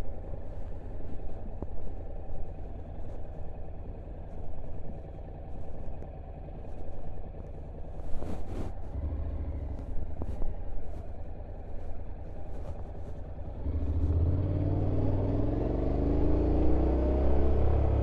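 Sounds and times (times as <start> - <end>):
motorcycle engine accelerating: 8.8 - 11.2, 13.4 - 18.0.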